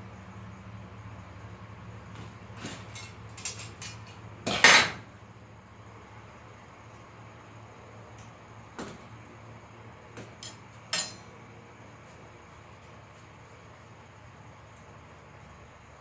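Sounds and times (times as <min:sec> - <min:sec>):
light metal clinks: 0:10.4 - 0:11.3.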